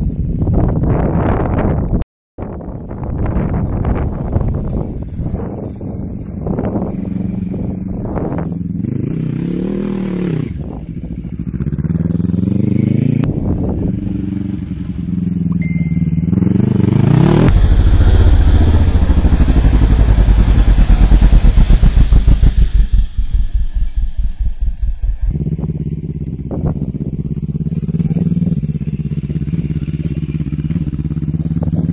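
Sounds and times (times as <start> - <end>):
dull pulsing engine: 2.5 - 31.9
quad bike engine revving: 3.9 - 22.6, 25.2 - 31.9.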